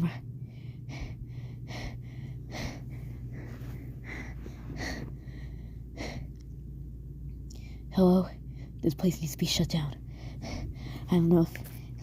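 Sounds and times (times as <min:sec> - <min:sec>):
steady low hum: 0:00.0 - 0:12.0
person breathing heavily: 0:00.4 - 0:06.4, 0:10.0 - 0:11.1.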